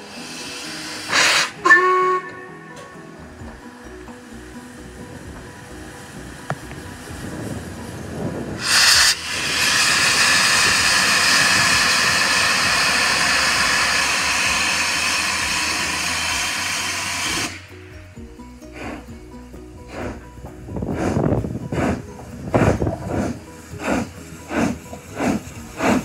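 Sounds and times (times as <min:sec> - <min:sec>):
sharp burst of steam: 0:00.0 - 0:02.3, 0:08.6 - 0:17.8, 0:21.0 - 0:26.0
loud steady hiss of steam: 0:00.0 - 0:26.0.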